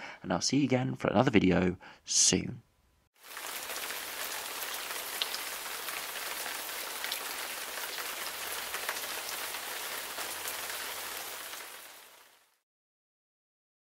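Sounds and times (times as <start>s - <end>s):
raindrops ticking: 3.2s - 12.3s
steady rain hiss: 3.2s - 12.6s.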